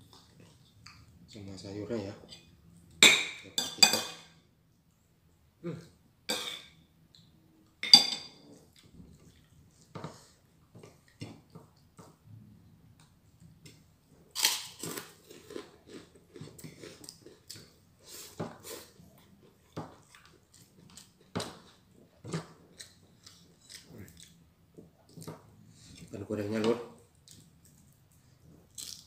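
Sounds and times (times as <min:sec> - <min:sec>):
person chewing crunchy food: 0:14.3 - 0:24.4, 0:27.1 - 0:29.0.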